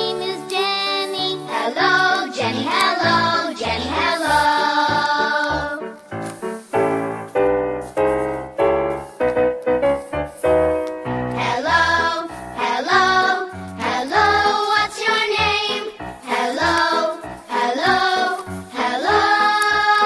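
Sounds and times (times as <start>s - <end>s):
person singing: 0.0s - 6.0s, 11.4s - 20.0s
pop music keyboard: 0.0s - 6.2s, 8.5s - 20.0s.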